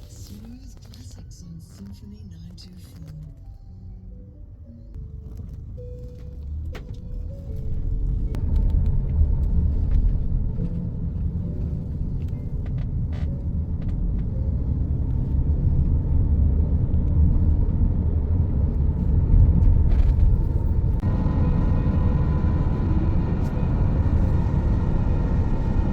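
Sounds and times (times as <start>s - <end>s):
motor vehicle rumble: 0.0s - 25.9s.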